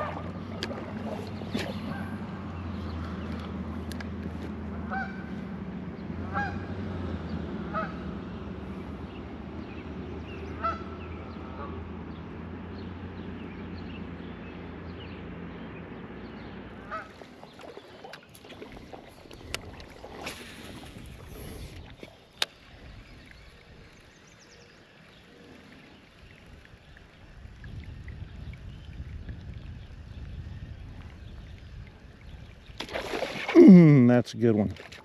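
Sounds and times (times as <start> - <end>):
honking bird calls: 4.9 - 5.3, 10.5 - 11.8, 16.8 - 17.2
white water rushing: 33.3 - 34.2.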